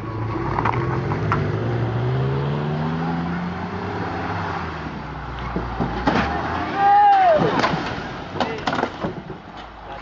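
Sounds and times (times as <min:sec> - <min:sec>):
vehicle engine accelerating: 0:00.0 - 0:05.8.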